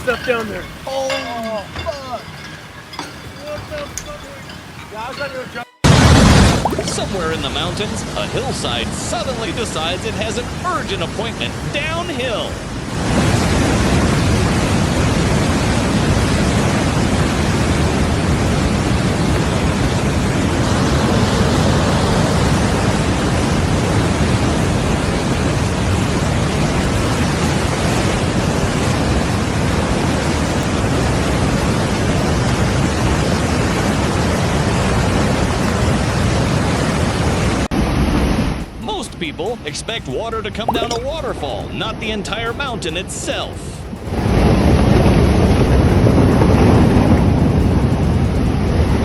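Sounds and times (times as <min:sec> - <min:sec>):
landslide roar of earth and debris: 0:05.9 - 0:38.6, 0:44.0 - 0:49.0.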